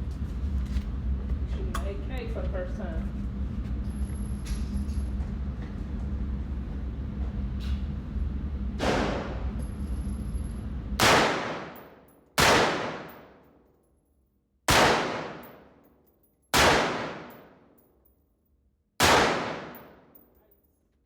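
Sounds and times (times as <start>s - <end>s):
rifle shots with echo: 11.0s - 13.4s, 14.7s - 15.7s, 16.6s - 17.6s, 19.0s - 20.1s.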